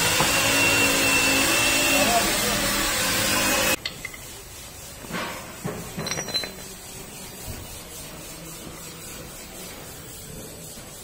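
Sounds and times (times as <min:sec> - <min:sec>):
hard objects clinking: 0:05.9 - 0:06.7.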